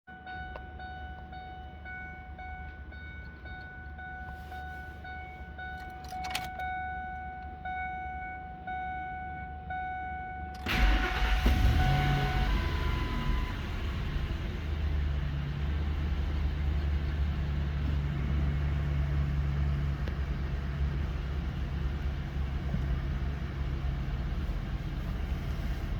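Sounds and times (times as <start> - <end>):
truck warning chime dinging: 0.1 - 24.3
truck engine cranking and running: 4.9 - 6.9, 10.5 - 25.9.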